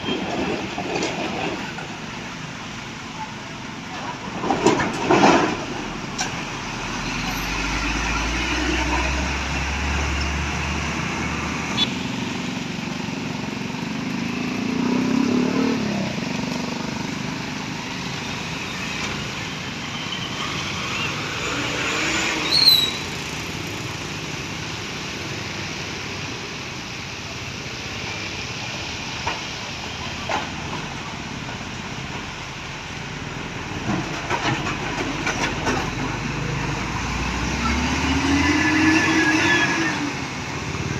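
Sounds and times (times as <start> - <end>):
vehicles passing by: 0.0 - 40.9
brief high squeal: 22.3 - 23.1.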